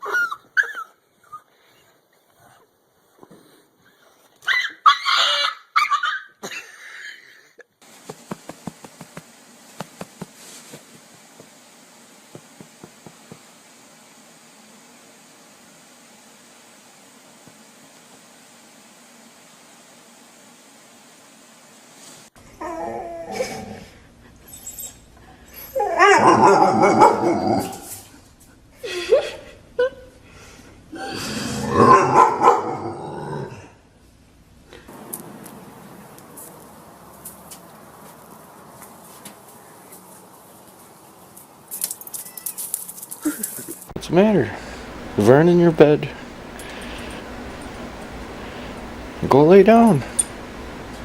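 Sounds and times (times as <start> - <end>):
dog whining and howling: 4.4 - 6.4, 22.5 - 28.0
pet animal crying: 4.5 - 6.3
steady hiss: 7.8 - 22.4, 34.6 - 51.0.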